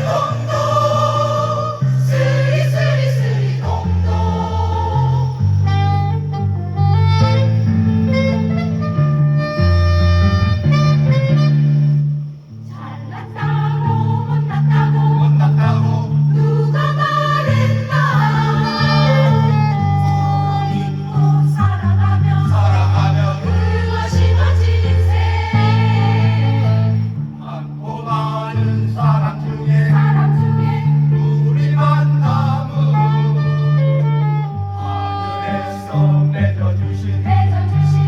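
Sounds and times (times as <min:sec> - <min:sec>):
choir singing: 0:00.0 - 0:07.4, 0:12.6 - 0:38.0
instrumental accompaniment: 0:00.0 - 0:28.4
sustained bass line: 0:00.0 - 0:34.4.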